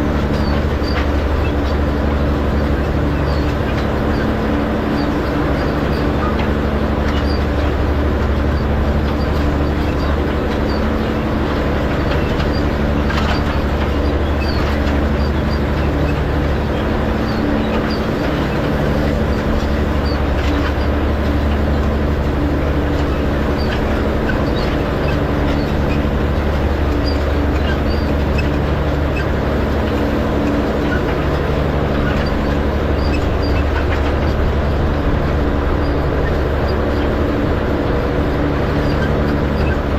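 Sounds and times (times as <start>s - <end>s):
tractor engine running under load: 0.0s - 39.9s.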